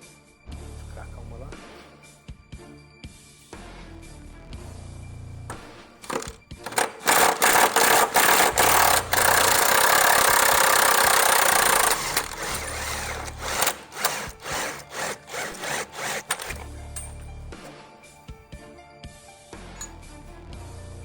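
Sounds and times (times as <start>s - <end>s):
power tool undoing bolts: 5.5s - 17.8s.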